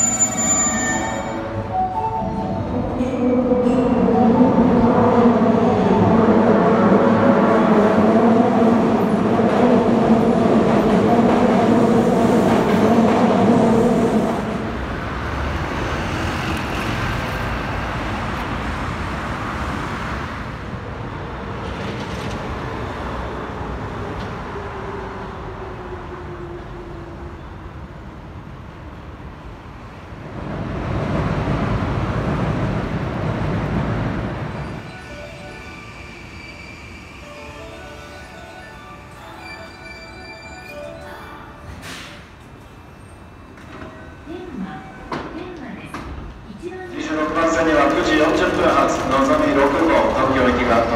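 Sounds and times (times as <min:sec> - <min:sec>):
street traffic noise: 0:00.0 - 0:36.4
train rumbling over steel viaduct: 0:00.0 - 0:40.6, 0:42.2 - 0:50.9
subway train passing fast: 0:00.0 - 0:50.9.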